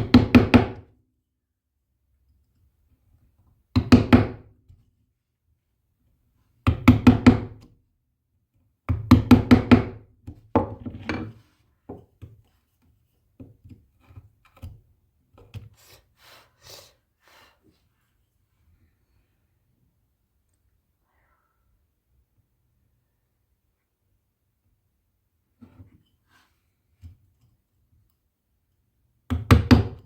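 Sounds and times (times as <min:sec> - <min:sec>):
faint taps and knocks: 0:10.2 - 0:15.7.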